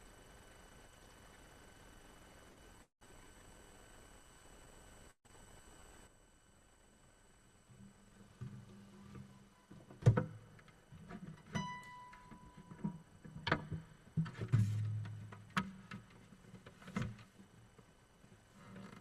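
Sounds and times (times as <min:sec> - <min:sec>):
acoustic guitar plucked notes: 0:11.5 - 0:12.8.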